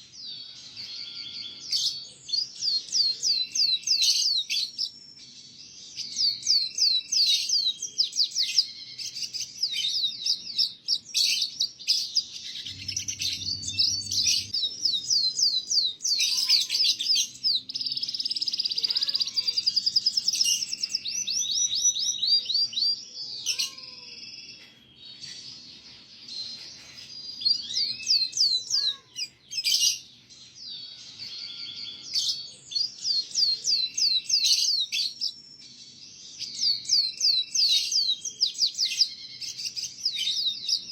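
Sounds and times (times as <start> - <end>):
canary singing trills: 0.0 - 40.9
low rumble: 12.6 - 14.6.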